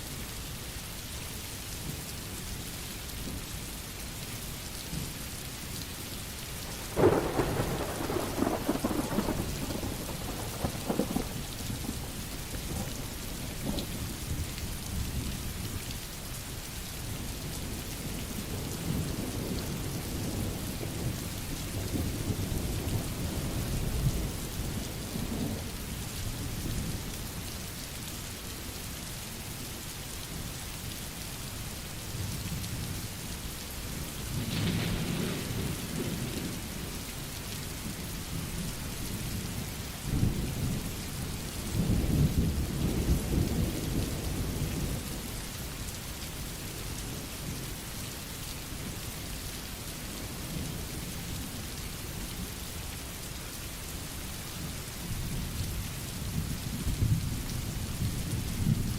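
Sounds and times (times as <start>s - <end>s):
steady rain falling: 0.0s - 58.9s
thunder rumbling: 6.8s - 12.1s.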